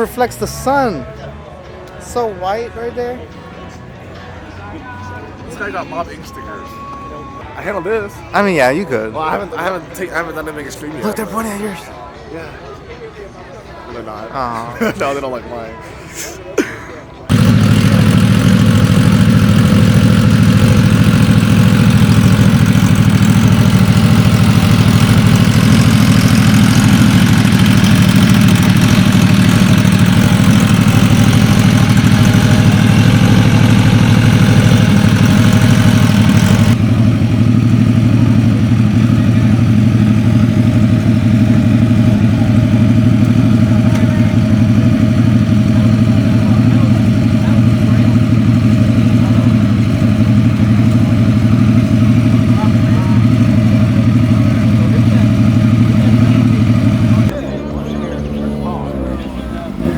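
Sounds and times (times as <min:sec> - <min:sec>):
vehicle engine idling: 0:17.3 - 0:59.9.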